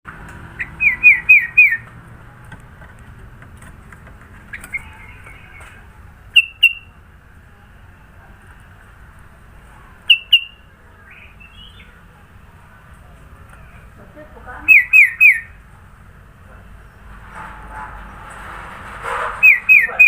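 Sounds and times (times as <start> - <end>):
sharp loud bird notes: 0.5 - 1.9, 6.3 - 6.9, 10.1 - 12.0, 14.7 - 15.6, 19.4 - 20.0
bird whistled song: 0.6 - 1.9, 6.3 - 6.9, 10.1 - 12.0, 14.7 - 15.6, 19.4 - 20.0.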